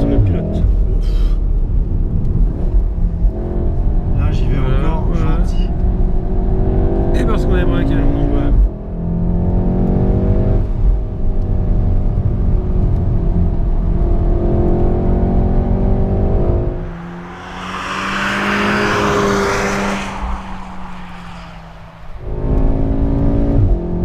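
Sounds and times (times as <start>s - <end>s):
car engine accelerating: 14.1s - 24.0s
rushing noise: 16.7s - 22.5s.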